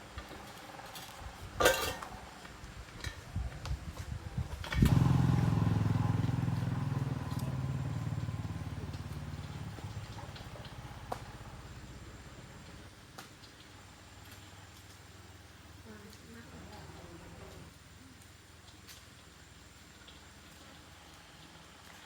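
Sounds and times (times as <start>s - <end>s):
motorbike engine starting and running: 4.4s - 13.0s.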